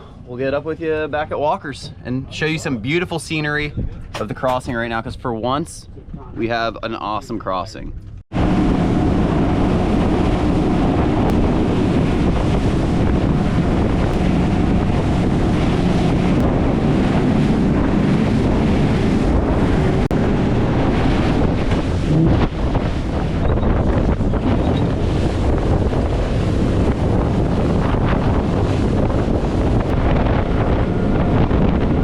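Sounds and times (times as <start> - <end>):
water rushing along hull: 0.0 - 32.0
wind buffeting microphone: 0.0 - 32.0
boat engine drone: 8.3 - 32.0.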